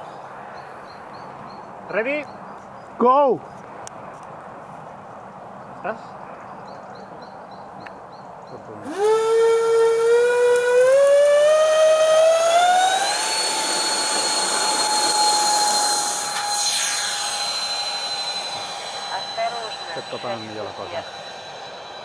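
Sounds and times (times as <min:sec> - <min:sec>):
electric ducted fans whining: 0:08.6 - 0:22.0.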